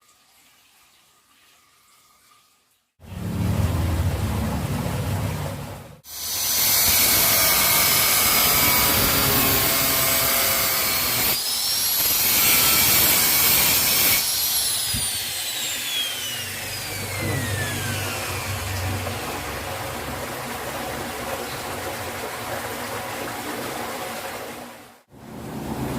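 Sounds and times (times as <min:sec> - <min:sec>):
electric grinder whining: 0:06.1 - 0:19.8.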